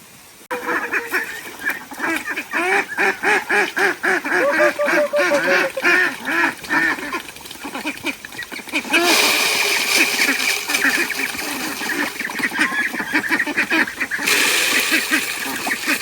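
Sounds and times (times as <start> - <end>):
ducks quacking: 0.5 - 9.2, 9.9 - 16.0.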